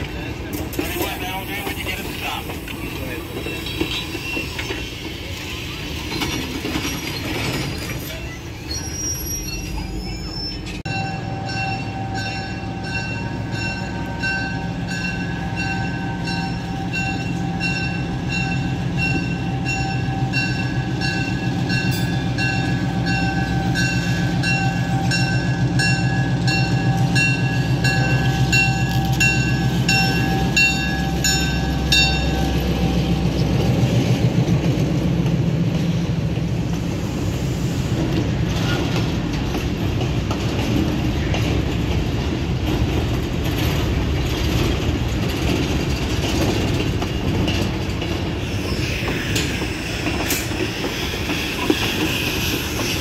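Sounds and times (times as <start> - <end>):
train rumbling along track: 0.0 - 53.0
bell ringing steadily: 10.9 - 33.0.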